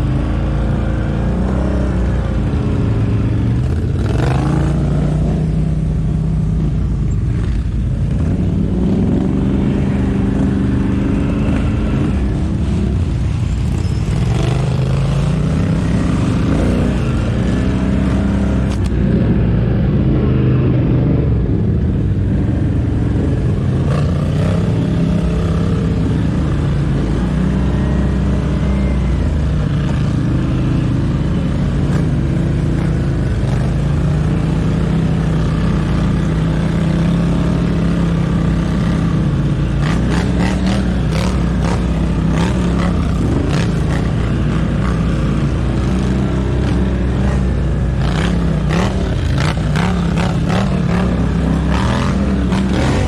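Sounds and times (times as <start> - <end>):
atv engine revving under load: 14.0 - 18.9, 31.8 - 53.0.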